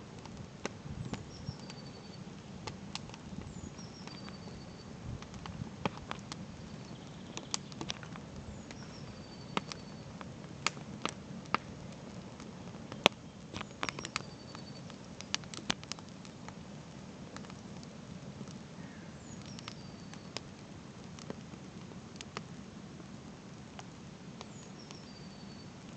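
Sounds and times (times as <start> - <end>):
campfire wood crackling: 0.0 - 25.9
flames rushing: 2.4 - 14.2.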